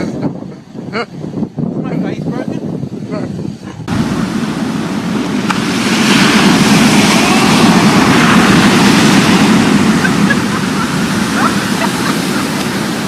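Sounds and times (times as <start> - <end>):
breaking surf: 3.8 - 13.0.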